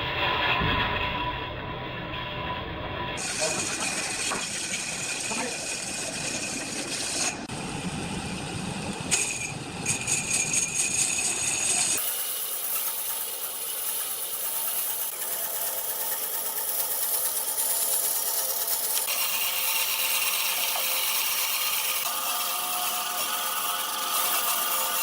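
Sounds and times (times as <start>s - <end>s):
power tool working wood: 3.2s - 7.6s, 9.9s - 25.0s.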